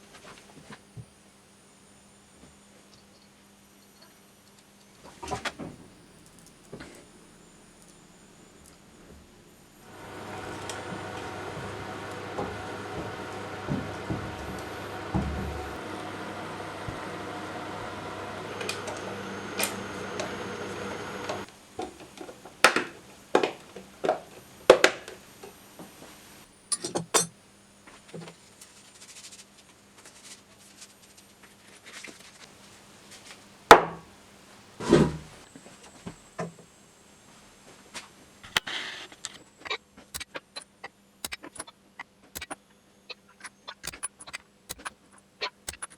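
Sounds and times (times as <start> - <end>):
machine running: 9.5 - 21.5, 43.8 - 44.1, 44.7 - 44.9
tools clattering on a workbench: 26.7 - 27.3.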